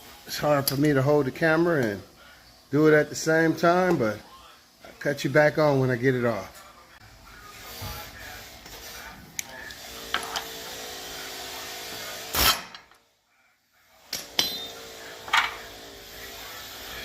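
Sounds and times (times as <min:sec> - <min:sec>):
metal tools clinking and knocking: 0:14.2 - 0:15.7.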